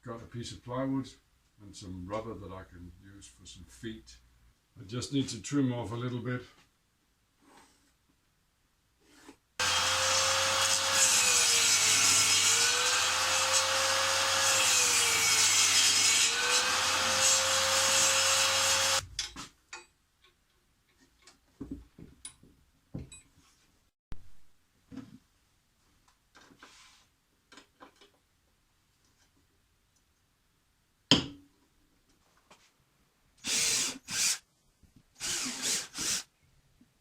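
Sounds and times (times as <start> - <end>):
power saw cutting plywood: 9.6 - 19.0.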